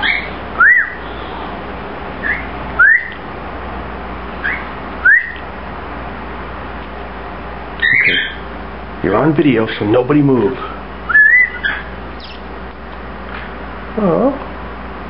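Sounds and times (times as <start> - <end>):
cockatiel whistled calls: 0.0 - 1.4, 2.2 - 3.2, 4.4 - 5.4, 7.8 - 8.4, 11.1 - 12.4.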